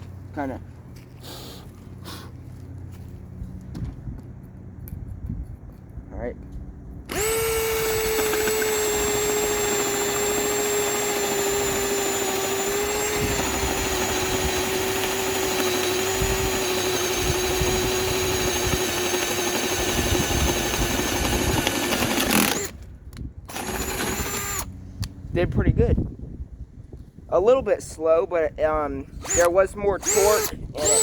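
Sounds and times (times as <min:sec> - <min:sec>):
cordless drill boring through wood: 0:07.1 - 0:22.8, 0:23.5 - 0:24.7, 0:29.2 - 0:31.0.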